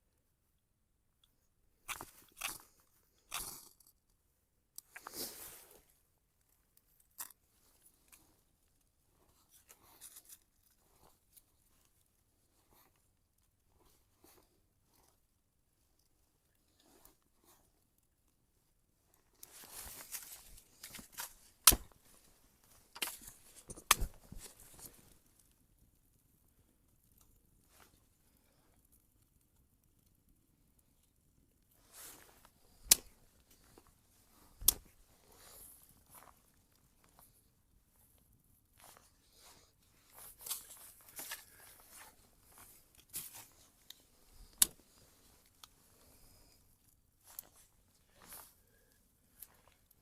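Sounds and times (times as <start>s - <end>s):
twigs breaking and crunching: 1.8s - 4.0s, 19.4s - 25.4s, 31.8s - 37.4s, 38.8s - 46.5s
wood crackling and rustling: 19.1s - 25.6s, 31.6s - 50.0s
dry sticks snapping: 19.4s - 22.0s, 22.9s - 24.6s, 42.9s - 44.8s.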